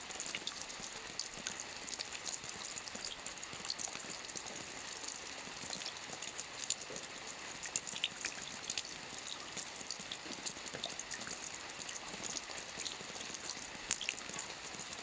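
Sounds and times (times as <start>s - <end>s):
steady rain falling: 0.0s - 15.0s
raindrops pattering: 7.8s - 15.0s.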